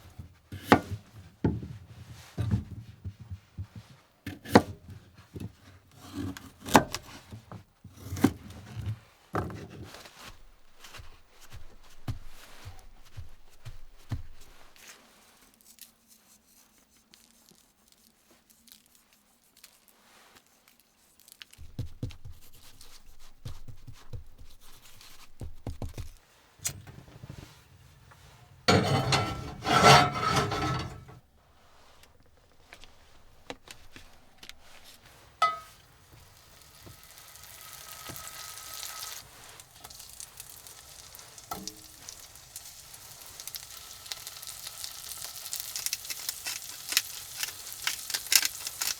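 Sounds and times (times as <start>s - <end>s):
kitchen knocks and handling: 0.0s - 5.7s, 6.7s - 9.9s, 25.2s - 31.2s, 33.4s - 35.9s
loud rasping scrape: 28.1s - 31.2s
frying pan sizzling: 34.6s - 48.9s.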